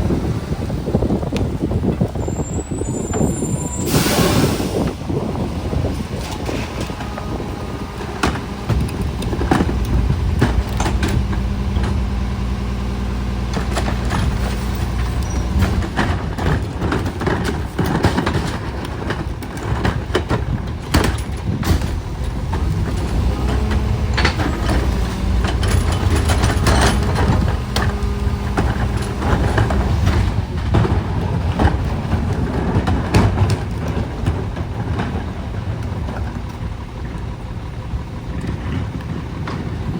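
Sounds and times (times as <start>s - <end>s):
diesel engine running: 0.0s - 39.9s
metallic clanks and knocks: 8.0s - 12.3s, 13.5s - 35.3s.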